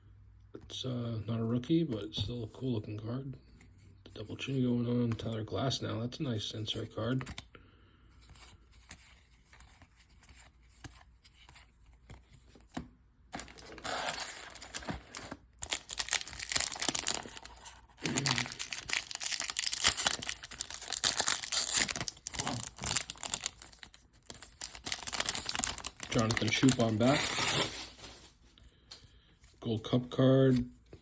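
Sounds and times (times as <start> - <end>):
cards handled: 8.2 - 28.3
card wrapper tearing and crinkling: 13.4 - 28.4.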